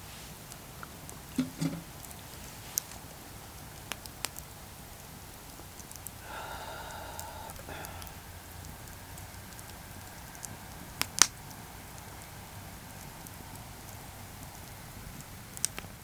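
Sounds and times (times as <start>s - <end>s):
campfire crackling and popping: 0.3s - 16.0s.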